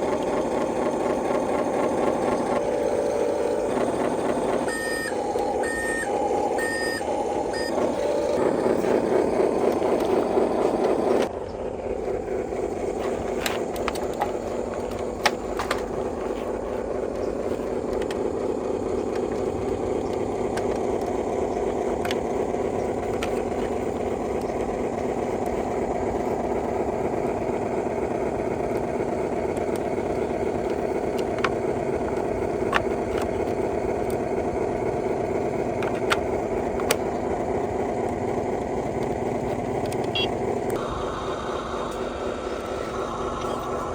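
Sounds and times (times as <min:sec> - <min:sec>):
toy vehicle motor whir: 0:00.0 - 0:11.3, 0:12.0 - 0:41.0
short electronic beeps: 0:04.7 - 0:07.8, 0:40.1 - 0:40.3.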